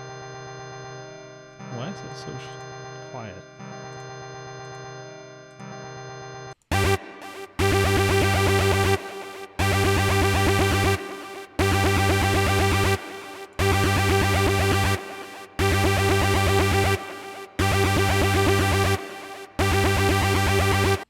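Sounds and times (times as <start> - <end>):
electronic music with bass line: 6.7 - 21.0.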